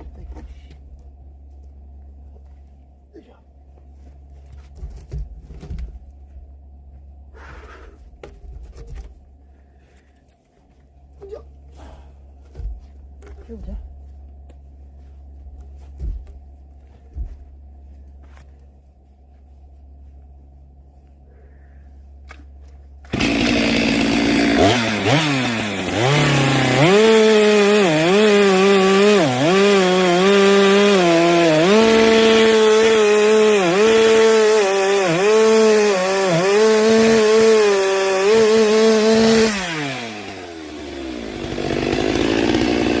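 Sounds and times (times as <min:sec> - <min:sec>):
chainsaw cutting a log: 0:23.0 - 0:43.0.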